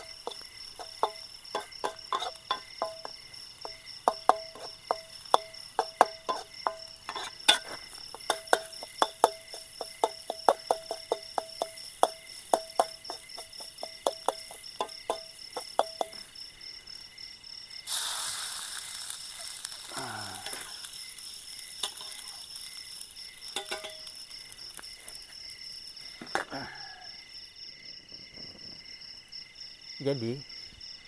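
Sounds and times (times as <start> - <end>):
metal spatula tapping a wok: 0.0 - 16.3, 21.8 - 24.2
food sizzling in hot oil: 0.0 - 26.0
crickets trilling: 0.0 - 31.0.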